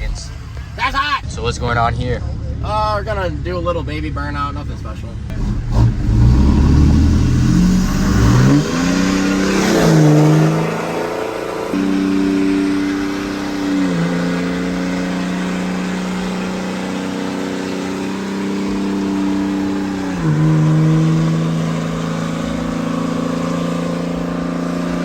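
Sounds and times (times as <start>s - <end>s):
truck engine revving high: 5.3s - 25.0s.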